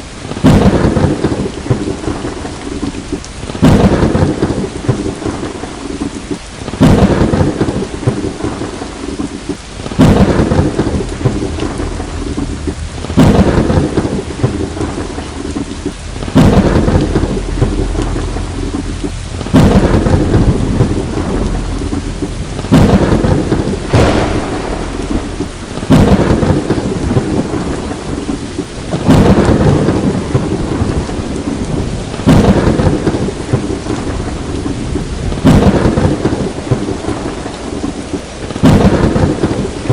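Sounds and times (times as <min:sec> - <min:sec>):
heavy rain: 0:00.0 - 0:39.9
thunder cracking and rumbling: 0:00.0 - 0:39.9.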